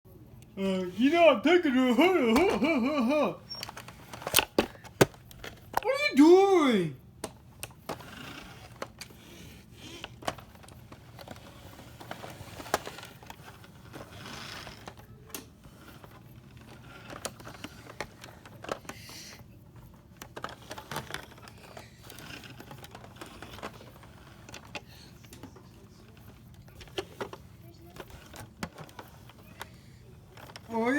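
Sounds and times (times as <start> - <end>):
small toys clicking and tapping: 7.2 - 30.9.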